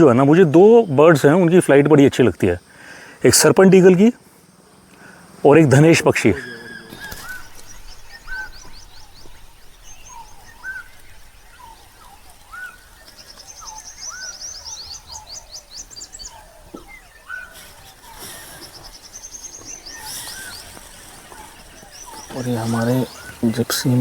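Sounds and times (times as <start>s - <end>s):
high chittering bird notes: 5.4s - 24.0s
bird rising whistle: 6.4s - 9.2s.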